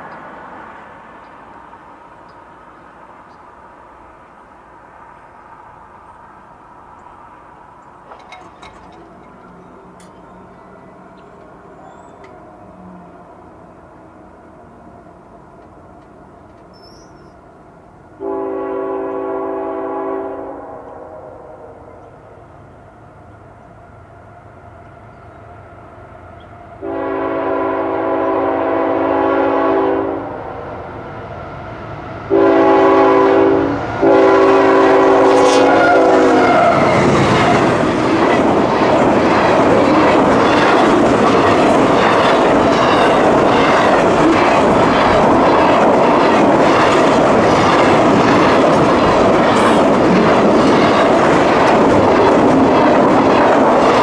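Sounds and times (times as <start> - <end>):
train wheel clatter: 7.9 - 12.6, 15.6 - 17.4, 35.9 - 54.0
locomotive air horn blasts: 18.2 - 22.0, 26.8 - 30.4, 32.3 - 37.0.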